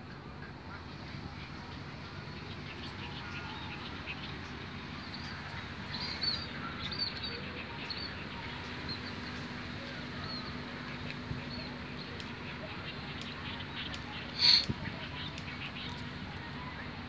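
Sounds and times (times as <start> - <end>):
small birds chirping: 0.0 - 17.0
open air hiss: 7.8 - 16.6.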